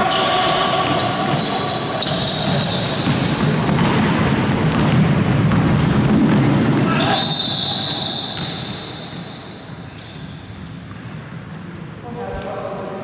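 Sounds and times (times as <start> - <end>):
sneakers squeaking on court: 0.0 - 11.8
ball bouncing: 0.8 - 6.9, 8.3 - 11.6.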